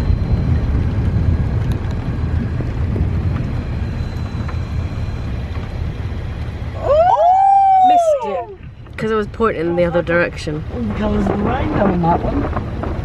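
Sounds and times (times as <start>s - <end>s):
rolling thunder rumble: 0.0s - 7.8s.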